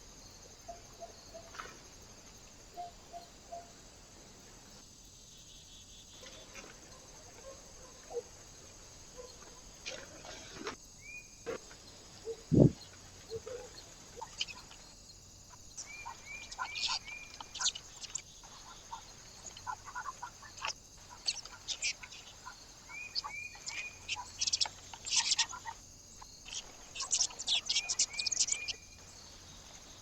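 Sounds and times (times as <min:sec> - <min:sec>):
small birds chirping: 0:10.9 - 0:30.0.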